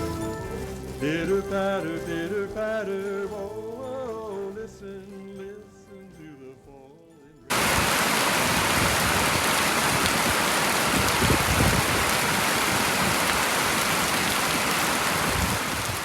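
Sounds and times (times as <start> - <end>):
heavy rain falling: 7.5 - 16.0.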